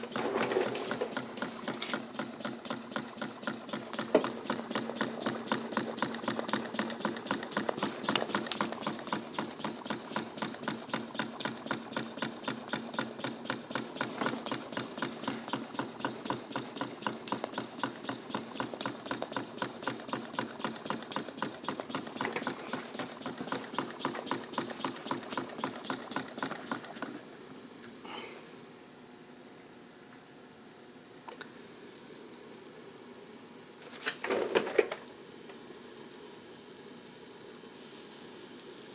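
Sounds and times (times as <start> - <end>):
steam engine exhaust beating: 0.9 - 27.2
steam hissing: 2.0 - 27.2.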